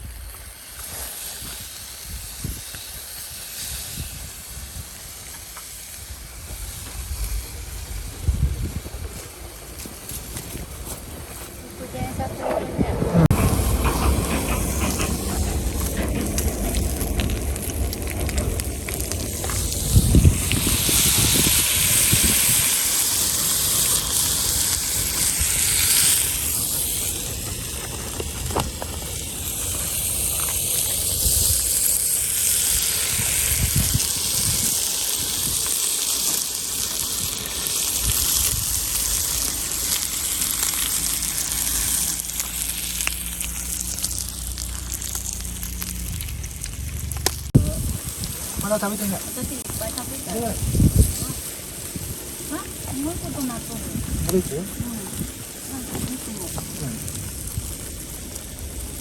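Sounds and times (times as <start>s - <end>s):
wood fire hissing: 0.0s - 59.0s
passing train rumbling: 7.4s - 34.6s.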